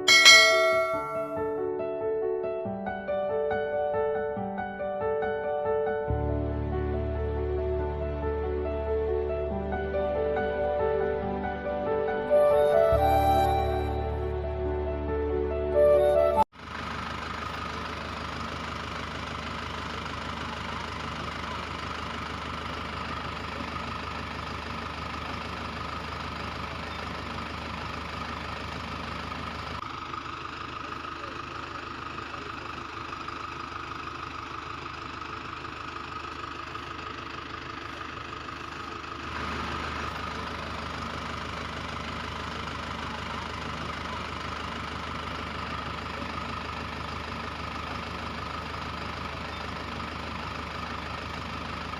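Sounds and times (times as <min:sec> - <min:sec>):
tractor engine idling: 0:00.0 - 0:01.5, 0:16.6 - 0:51.9.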